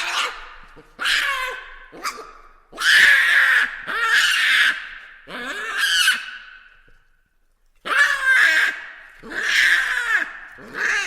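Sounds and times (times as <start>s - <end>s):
baboons calling harshly: 2.8s - 6.4s, 7.9s - 11.0s.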